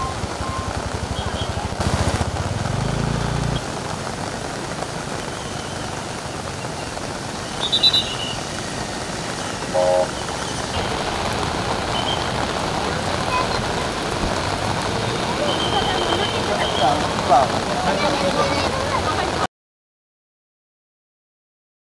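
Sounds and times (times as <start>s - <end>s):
floodwater rushing: 0.0s - 19.5s
heavy rain: 0.0s - 19.5s
short beep: 9.7s - 10.1s.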